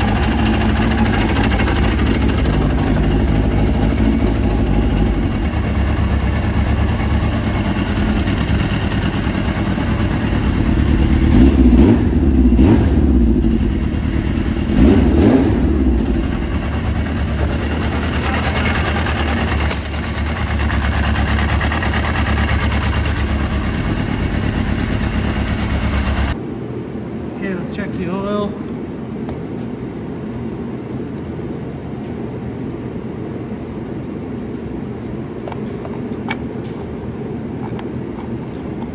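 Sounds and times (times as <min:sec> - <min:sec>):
engine throttle blips: 0:00.0 - 0:26.4
motorcycle engine idling: 0:00.0 - 0:26.4.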